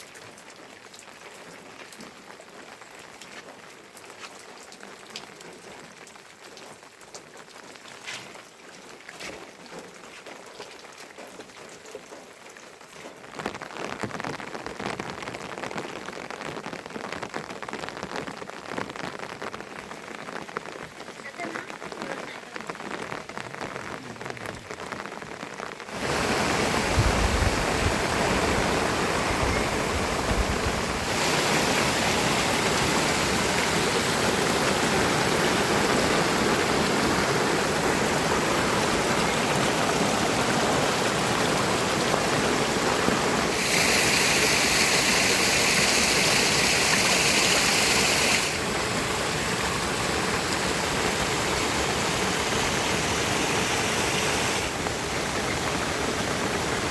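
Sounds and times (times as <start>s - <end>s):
heavy rain: 0.0s - 56.9s
running water: 25.9s - 56.9s.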